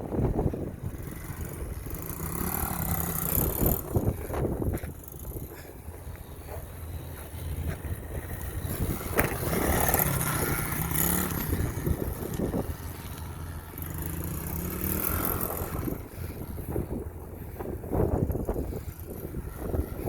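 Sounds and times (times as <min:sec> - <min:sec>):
pit bike engine revving: 0:00.1 - 0:20.0.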